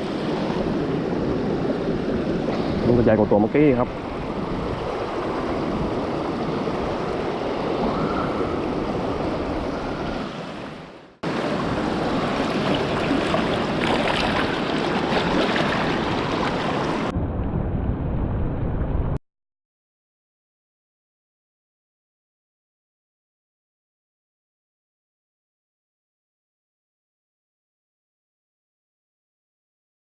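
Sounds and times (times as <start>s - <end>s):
stream rushing: 0.0s - 17.1s.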